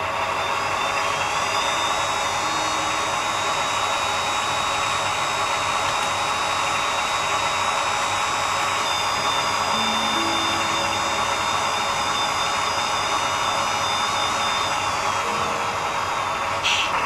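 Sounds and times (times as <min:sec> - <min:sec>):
electric pump whirring: 0:00.0 - 0:17.0.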